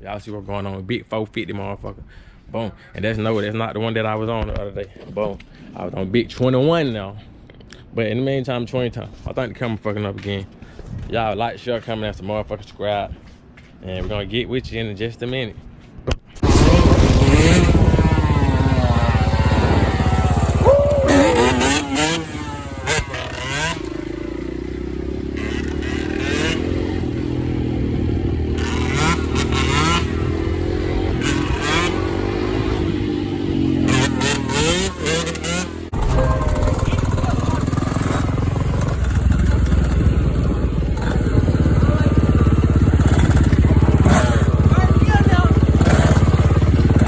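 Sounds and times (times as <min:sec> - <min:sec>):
dirt bike engine revving: 0:16.4 - 0:47.0.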